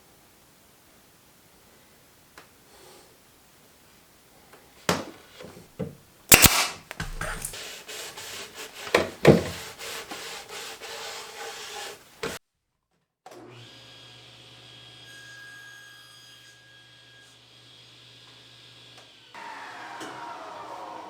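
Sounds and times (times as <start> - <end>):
wood scraping and rubbing: 6.4 - 12.0.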